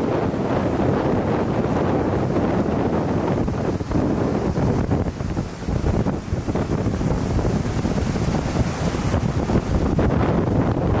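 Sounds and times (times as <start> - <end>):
storm waves breaking: 0.0 - 11.0
wind buffeting microphone: 0.0 - 11.0.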